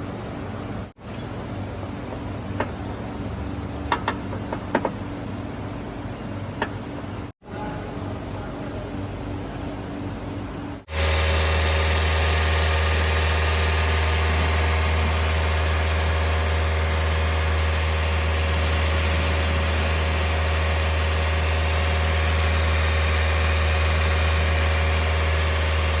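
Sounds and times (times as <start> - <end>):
car engine idling: 1.2 - 7.2.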